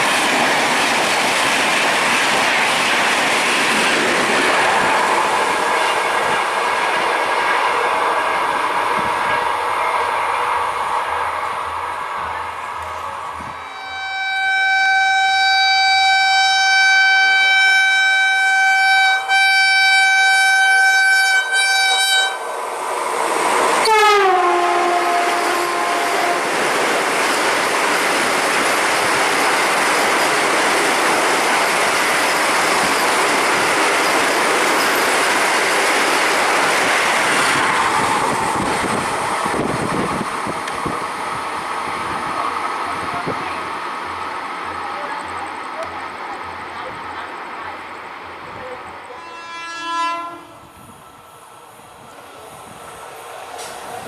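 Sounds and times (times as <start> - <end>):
train carriages rushing clatter: 0.0 - 10.3, 20.4 - 47.5
train horn blast: 13.4 - 22.5, 23.8 - 26.5, 49.1 - 50.7.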